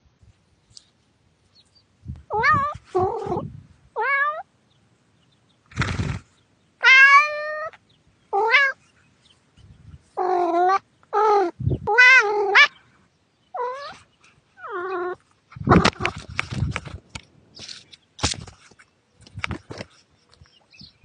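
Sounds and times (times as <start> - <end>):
cat meowing: 2.3 - 3.4, 4.0 - 4.5, 6.8 - 7.8, 8.4 - 8.8, 10.2 - 12.8, 13.6 - 14.0, 14.6 - 15.2.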